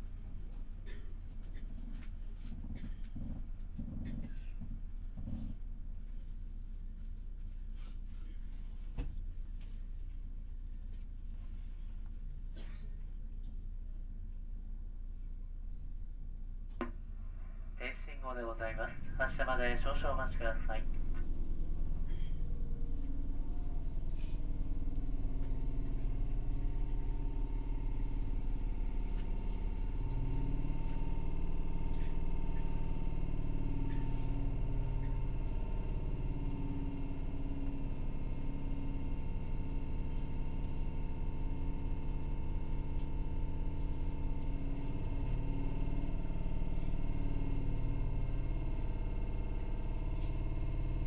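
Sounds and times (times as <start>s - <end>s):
electric train motor hum: 18.0s - 51.0s.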